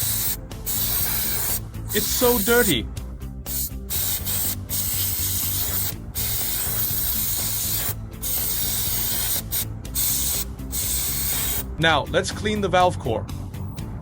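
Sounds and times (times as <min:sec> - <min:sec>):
aerosol spray hissing: 0:00.0 - 0:02.7, 0:03.4 - 0:11.7.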